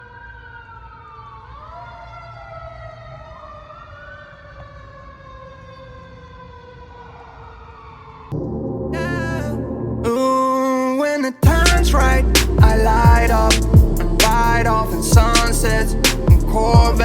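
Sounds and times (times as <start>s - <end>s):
emergency siren wailing: 0.0s - 17.0s
low rumble: 11.4s - 17.0s
music: 11.4s - 17.0s.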